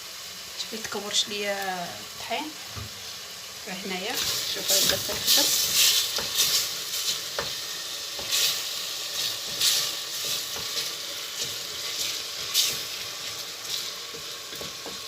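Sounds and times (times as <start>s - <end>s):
sauce sizzling hiss: 0.0s - 15.0s
swishing stir strokes: 4.2s - 7.5s, 8.2s - 15.0s.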